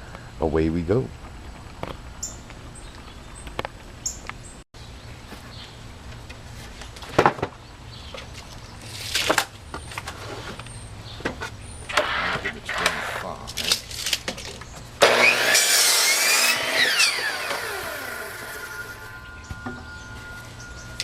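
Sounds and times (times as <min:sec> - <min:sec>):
low steady hum: 0:16.3 - 0:21.0.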